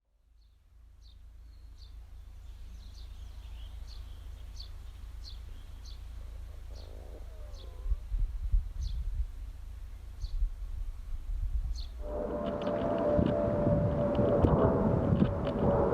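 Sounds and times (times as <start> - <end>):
bird chirping: 0.4 - 8.0
low rumble: 0.7 - 15.9.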